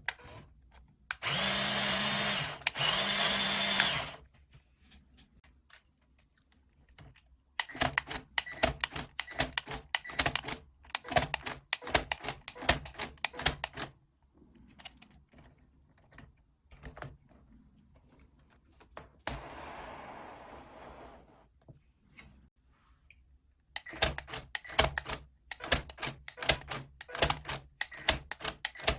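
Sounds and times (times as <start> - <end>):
plastic gear clicking and clattering: 6.8 - 14.0, 23.8 - 28.9.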